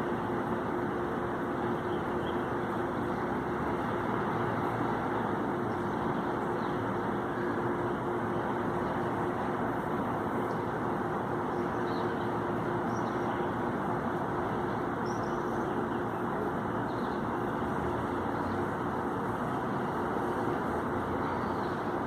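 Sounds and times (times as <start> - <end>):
city traffic roar: 0.0 - 22.0
constant low hum: 0.0 - 22.0
faint bird chirps: 15.0 - 16.0.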